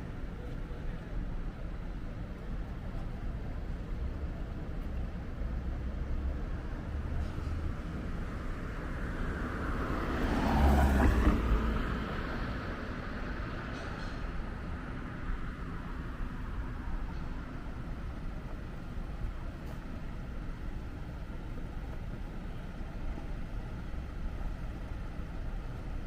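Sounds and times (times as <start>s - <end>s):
city street traffic: 0.0s - 26.0s
vehicle passing close by: 9.2s - 12.7s.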